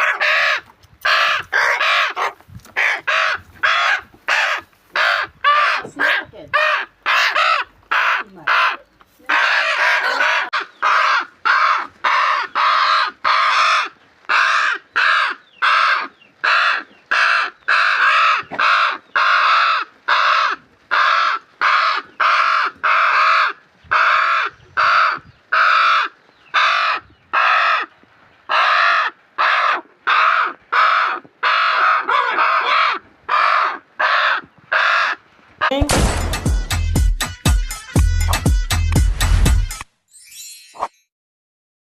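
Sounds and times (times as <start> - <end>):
bird making harsh calls: 0.0 - 27.9.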